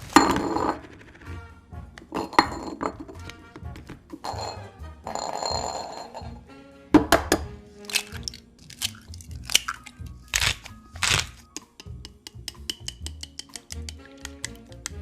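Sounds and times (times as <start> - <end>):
background music: 0.0 - 15.0
crisp food crunching: 7.8 - 11.4.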